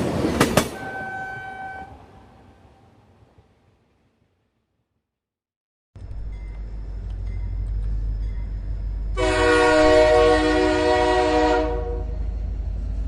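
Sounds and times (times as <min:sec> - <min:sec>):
train rumbling: 0:00.0 - 0:04.3, 0:06.0 - 0:13.0
train horn: 0:00.8 - 0:02.3, 0:09.2 - 0:12.2.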